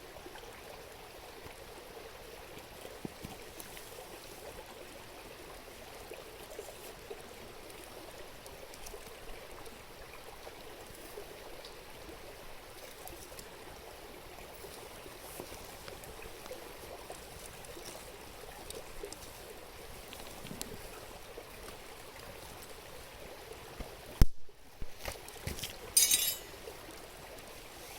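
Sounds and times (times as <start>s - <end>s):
river water babbling: 0.0s - 27.9s.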